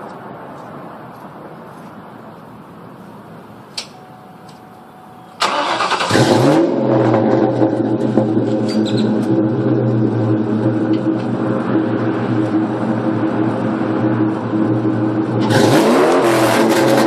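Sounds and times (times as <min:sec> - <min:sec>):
engine starter cranking: 0:05.4 - 0:06.6.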